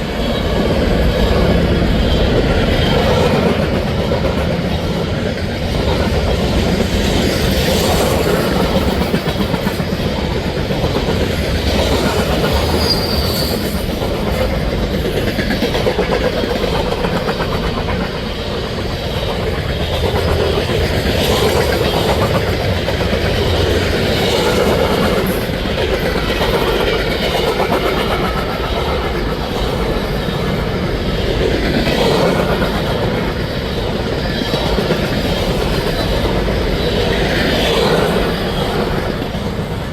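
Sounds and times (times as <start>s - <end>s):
freight train wheels rumbling: 0.0s - 39.9s
high wheel squeal: 12.6s - 13.9s.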